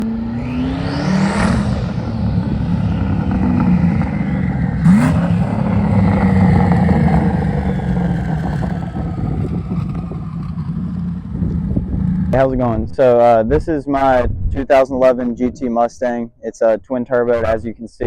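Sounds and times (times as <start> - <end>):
car engine accelerating: 0.0 - 14.3
high turbo whine: 0.0 - 15.8.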